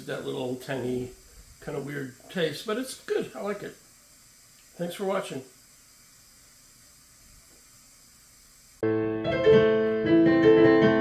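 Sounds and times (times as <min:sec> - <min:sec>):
piano music: 0:08.8 - 0:11.0.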